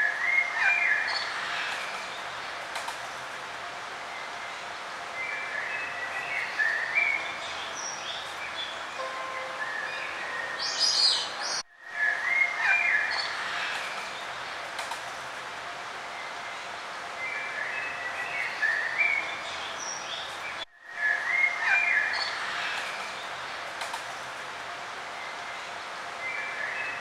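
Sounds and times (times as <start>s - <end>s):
steady background hiss: 0.0s - 27.0s
songbirds chirping: 3.8s - 14.8s.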